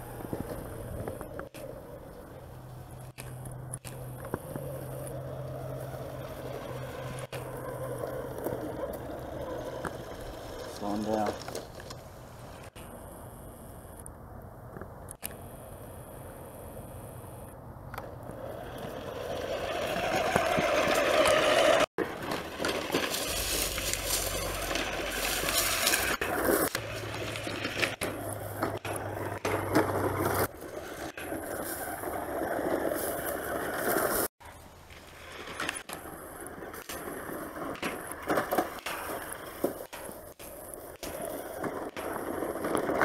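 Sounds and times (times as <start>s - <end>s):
tyres scraping over ground: 0.0s - 13.1s, 16.1s - 43.0s
toy truck electric motors running: 18.5s - 28.5s.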